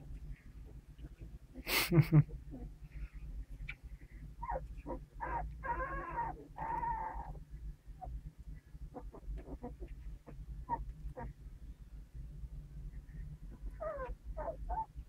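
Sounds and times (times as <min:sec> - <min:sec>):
puppies whining: 0:04.4 - 0:07.4, 0:08.9 - 0:10.0, 0:10.6 - 0:11.3, 0:13.5 - 0:15.0
puppy squeaks and yelps: 0:04.4 - 0:07.4, 0:13.7 - 0:15.0.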